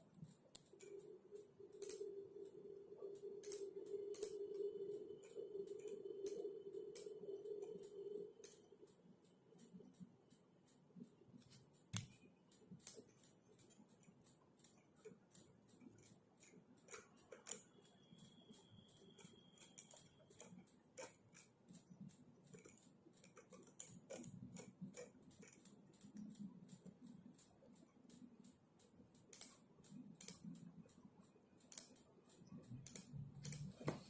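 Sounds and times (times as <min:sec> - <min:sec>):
keyboard typing: 0:00.0 - 0:34.0.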